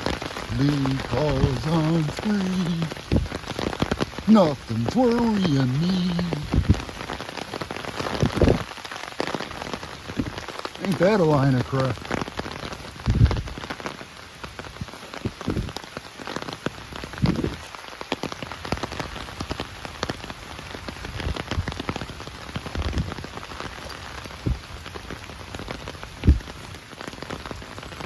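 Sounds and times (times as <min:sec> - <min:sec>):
raindrop ticks: 0:00.0 - 0:28.0
steady rain falling: 0:00.0 - 0:28.0
low thumps: 0:03.0 - 0:03.5, 0:06.4 - 0:06.9.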